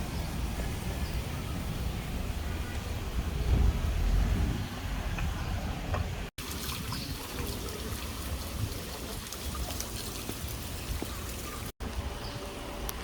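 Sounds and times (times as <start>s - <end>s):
water running and trickling: 6.4s - 11.8s.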